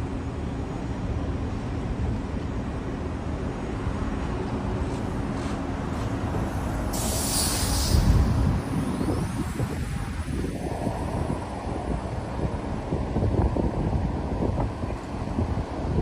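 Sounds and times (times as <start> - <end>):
passing traffic rumble: 0.0 - 16.0
short loud hiss: 6.9 - 8.3.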